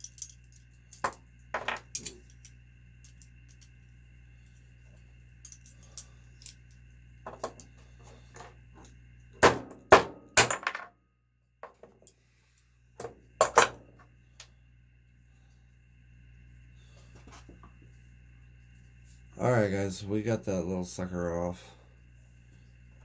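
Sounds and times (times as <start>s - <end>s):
small metal parts clinking: 0.0s - 3.8s, 5.4s - 8.6s, 10.4s - 10.9s.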